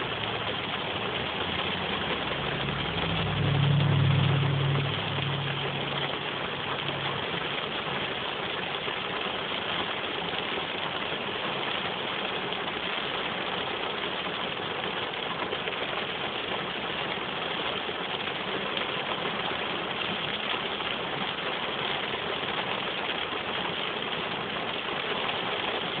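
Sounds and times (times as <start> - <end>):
rain on car windshield and roof: 0.0 - 26.0
low hum: 1.9 - 7.6.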